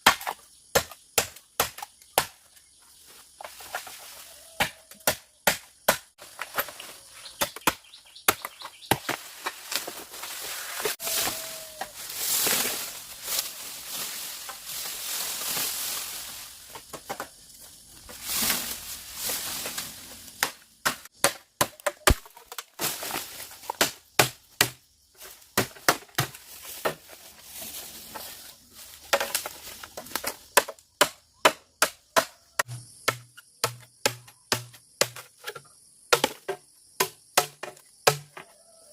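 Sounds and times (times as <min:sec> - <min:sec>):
chopping strikes on wood: 0:00.0 - 0:02.4, 0:04.6 - 0:06.7, 0:07.3 - 0:09.2, 0:20.4 - 0:22.6, 0:23.6 - 0:24.8, 0:25.6 - 0:27.0, 0:30.2 - 0:38.5.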